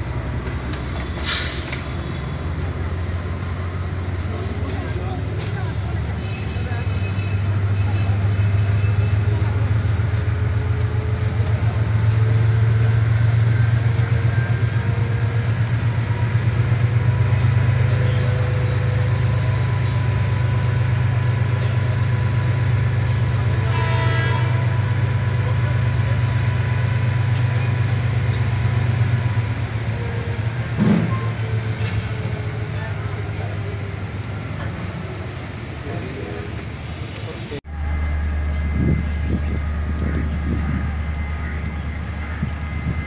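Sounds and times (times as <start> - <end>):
train running low drone: 0.0 - 43.0
train horn: 23.1 - 25.1.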